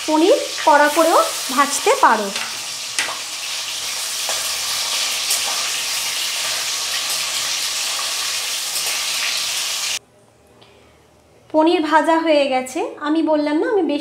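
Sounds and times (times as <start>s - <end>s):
cheese cubes sizzling in oil: 0.0s - 10.0s.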